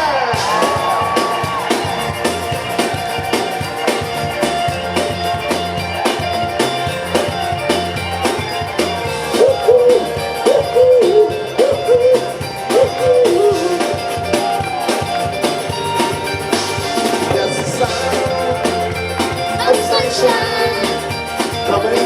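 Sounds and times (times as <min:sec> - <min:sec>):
bass line: 0:00.0 - 0:22.0
drum beat: 0:00.4 - 0:22.0
sustained guitar notes: 0:00.4 - 0:22.0.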